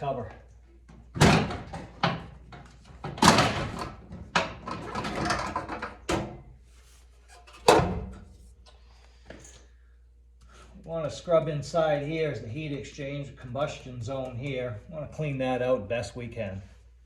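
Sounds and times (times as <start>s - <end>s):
metal cover clanking and rattling: 1.2s - 6.4s, 7.3s - 8.2s.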